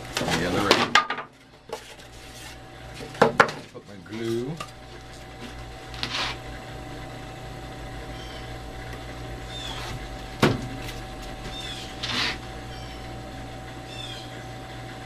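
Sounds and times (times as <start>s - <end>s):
electrical hum: 0.0s - 15.0s
short scrape: 6.0s - 6.4s, 12.0s - 12.4s
knock on workbench: 10.4s - 10.7s.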